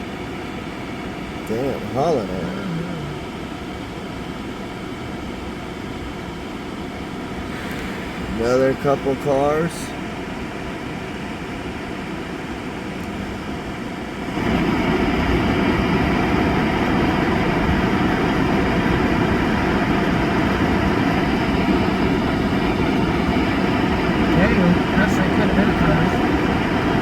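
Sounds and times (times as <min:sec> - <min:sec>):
vehicle ventilation: 0:07.5 - 0:09.8.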